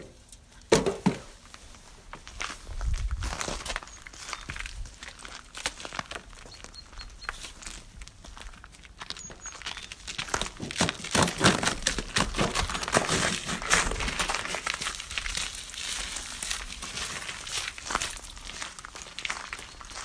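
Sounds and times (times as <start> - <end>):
crackling rustle of dry material: 0.1 - 20.0.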